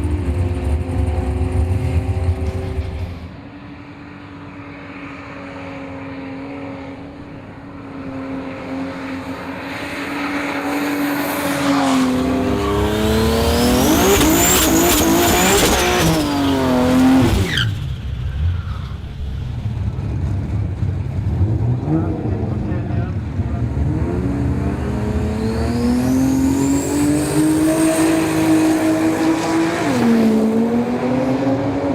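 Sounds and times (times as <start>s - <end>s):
car engine accelerating: 6.5s - 31.9s.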